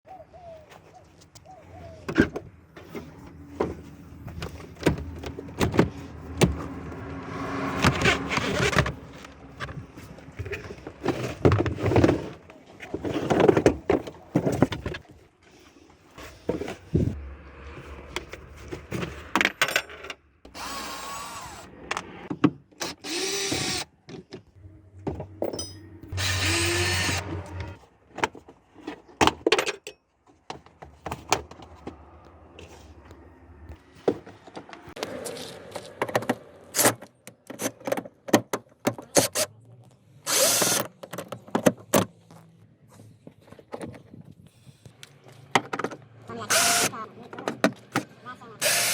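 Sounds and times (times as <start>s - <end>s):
power tool running: 20.5s - 21.7s, 22.8s - 23.8s, 26.1s - 27.8s, 40.3s - 40.8s, 46.5s - 47.0s, 48.6s - 48.9s.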